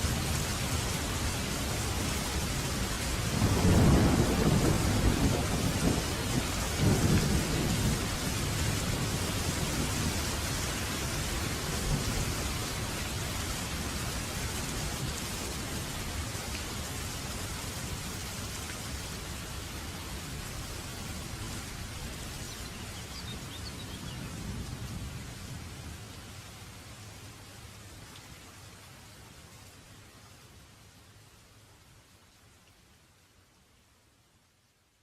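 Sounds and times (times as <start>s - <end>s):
steady rain: 0.0s - 35.0s
thunder rumbling: 3.3s - 10.2s.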